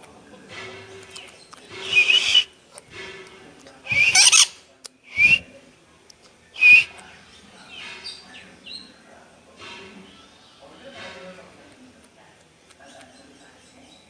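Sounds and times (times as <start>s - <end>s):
bird harsh squawks: 1.8s - 2.5s, 3.9s - 5.4s, 6.6s - 6.9s
faint short bird calls: 1.8s - 2.5s, 3.9s - 5.4s, 6.6s - 6.9s.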